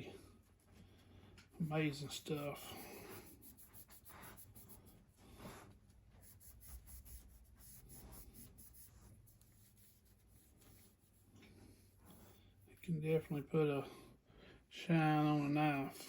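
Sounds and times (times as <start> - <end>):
rubbing strokes on knife: 1.6 - 13.4.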